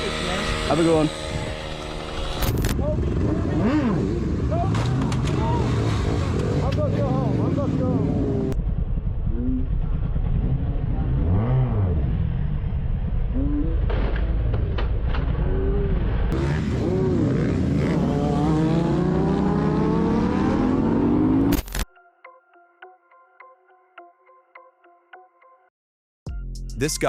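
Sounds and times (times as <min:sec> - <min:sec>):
motorcycle engine accelerating: 0:00.0 - 0:21.6.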